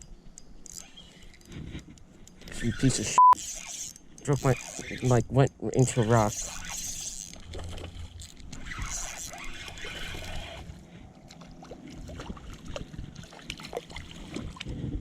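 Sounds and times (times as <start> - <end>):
handling clicks and scrapes: 0.4 - 10.8
running river water: 5.8 - 15.0.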